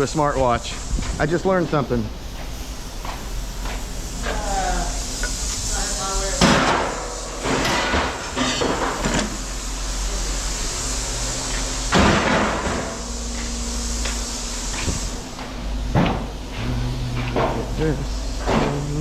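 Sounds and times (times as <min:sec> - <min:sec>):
low machine hum: 0:00.0 - 0:19.0
scrap metal clanking: 0:06.4 - 0:09.6.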